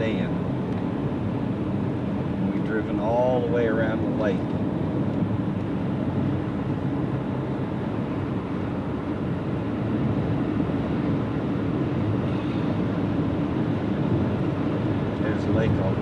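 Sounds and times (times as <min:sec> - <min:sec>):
car driving noise from inside: 0:09.6 - 0:16.0.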